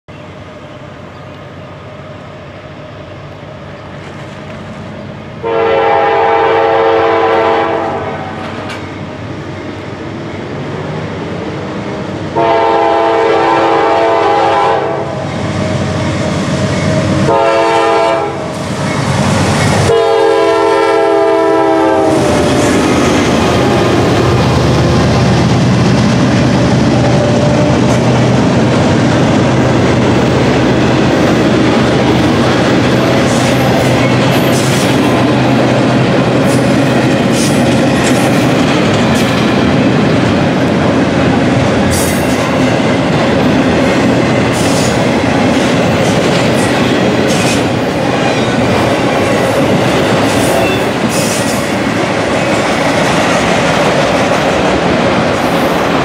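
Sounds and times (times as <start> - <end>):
locomotive engine hum: 0.1 - 56.0
train wheels clattering on rail: 3.8 - 5.1, 8.3 - 10.0, 12.4 - 56.0
locomotive horn blasts: 5.4 - 8.4, 12.3 - 15.2, 17.2 - 18.5, 19.8 - 22.6.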